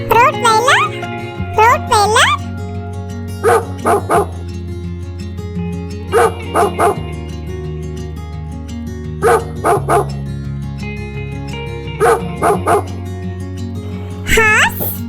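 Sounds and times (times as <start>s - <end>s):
background music: 0.0s - 10.2s
dog barking: 3.4s - 4.4s, 6.2s - 7.0s, 9.2s - 10.2s, 12.0s - 12.9s.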